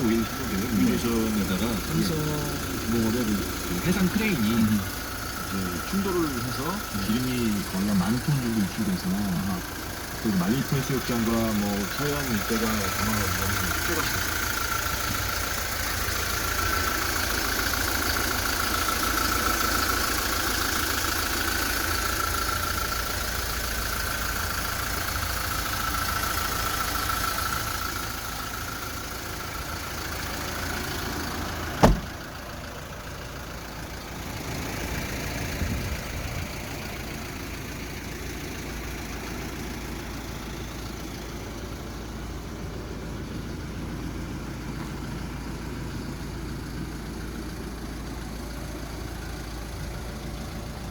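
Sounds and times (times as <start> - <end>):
diesel engine running: 0.0 - 50.9
sharp knock: 31.8 - 32.1.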